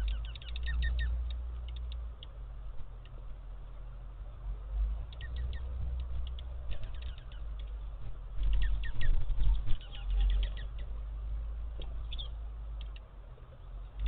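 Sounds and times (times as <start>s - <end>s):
low rumble: 0.0s - 14.0s
small birds chirping: 0.0s - 14.0s.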